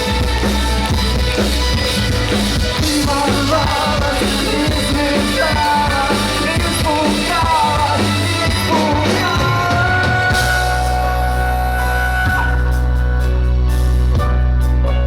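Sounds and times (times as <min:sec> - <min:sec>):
rock band playing: 0:00.0 - 0:15.0
person singing lead vocals: 0:02.0 - 0:13.5.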